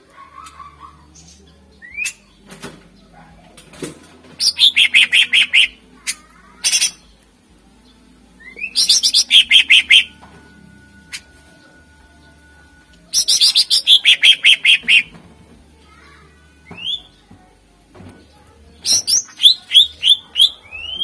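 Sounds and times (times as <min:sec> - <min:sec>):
bird singing whistled phrases: 0:01.8 - 0:02.2, 0:04.4 - 0:05.8, 0:08.4 - 0:10.2, 0:13.1 - 0:15.1, 0:16.8 - 0:17.2, 0:18.8 - 0:21.0.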